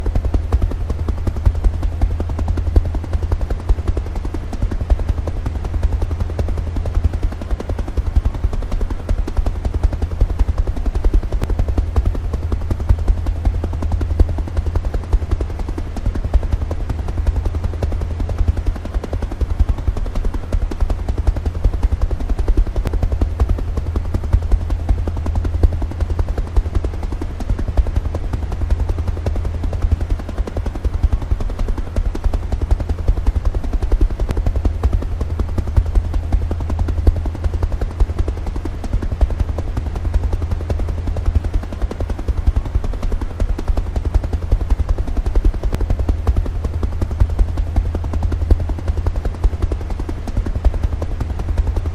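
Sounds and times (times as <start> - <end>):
helicopter rotor chopping: 0.0 - 51.9.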